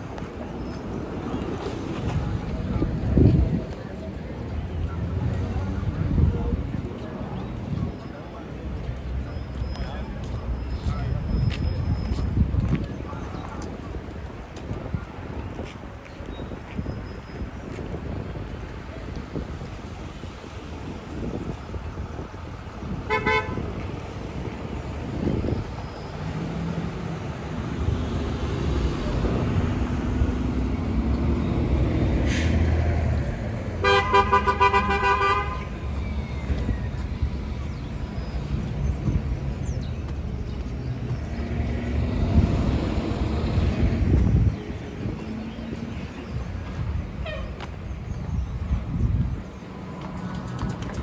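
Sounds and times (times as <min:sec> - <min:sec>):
road traffic rumble: 0:00.0 - 0:51.0
vehicle horn honking: 0:23.1 - 0:23.7, 0:33.8 - 0:35.8.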